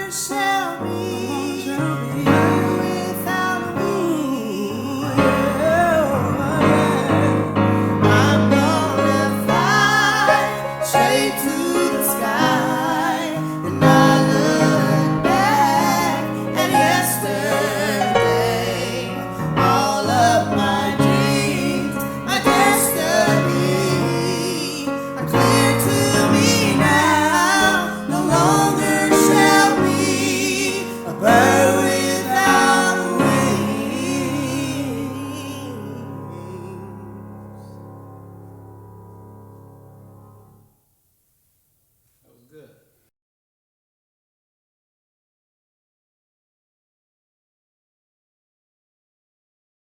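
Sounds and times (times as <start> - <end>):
women singing with vibrato: 0.0 - 37.1.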